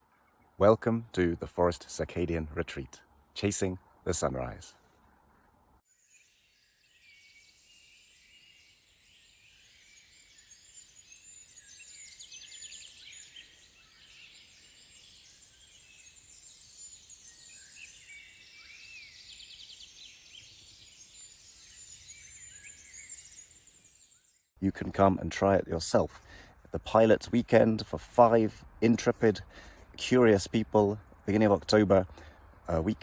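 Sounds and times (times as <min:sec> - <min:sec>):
songbirds singing and calling: 0:06.0 - 0:24.5.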